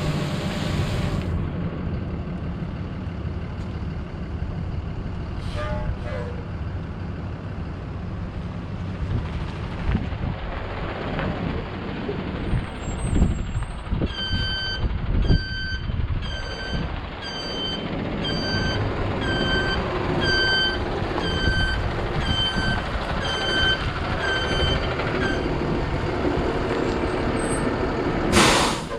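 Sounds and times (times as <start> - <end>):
truck engine running: 0.0 - 28.9
reverse backup alarm beeping: 14.1 - 25.6.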